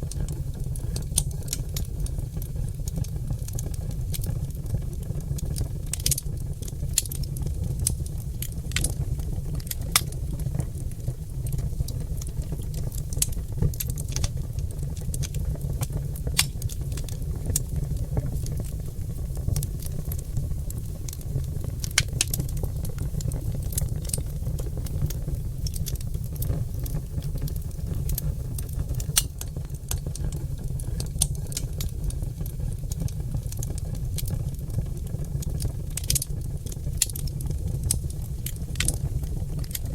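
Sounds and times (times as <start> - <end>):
logs crackling and popping in fireplace: 0.0 - 39.9.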